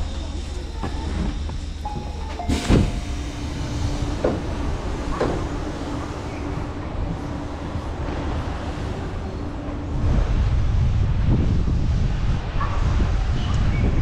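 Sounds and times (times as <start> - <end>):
train knocks: 0.0 - 10.3
train low rumble: 0.0 - 14.0.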